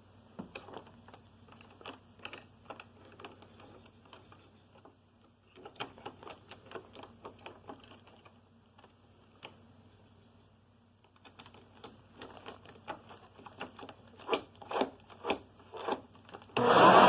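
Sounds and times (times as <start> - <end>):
plastic parts clicking: 0.4 - 9.6, 11.0 - 16.6.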